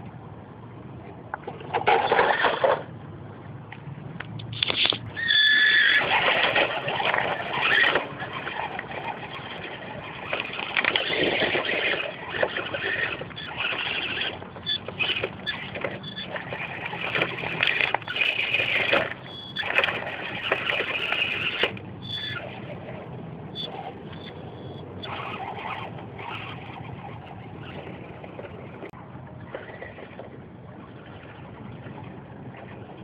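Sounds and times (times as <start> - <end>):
toy car motor running: 5.2 - 23.0, 23.6 - 28.6.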